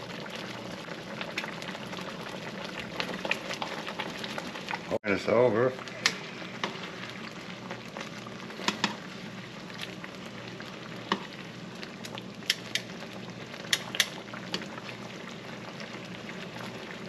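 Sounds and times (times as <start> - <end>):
meat sizzling in a skillet: 0.0 - 17.0
utensil clicking against pan: 12.4 - 12.9, 13.7 - 14.6.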